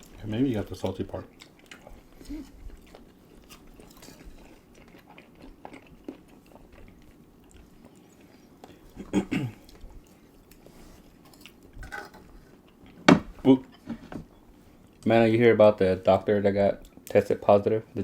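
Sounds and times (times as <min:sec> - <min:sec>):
chewing and mouth smacks: 0:01.2 - 0:09.0.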